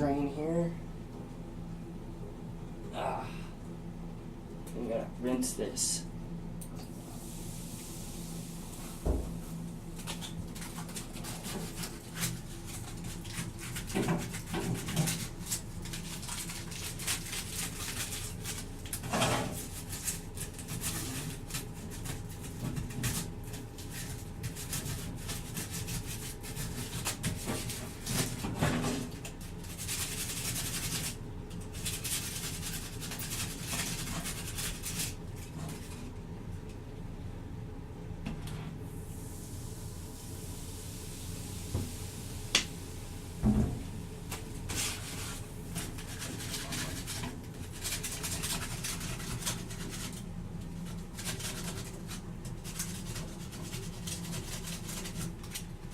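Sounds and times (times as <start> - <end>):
foil scrubbing metal pipe: 10.0 - 36.0, 44.7 - 55.9.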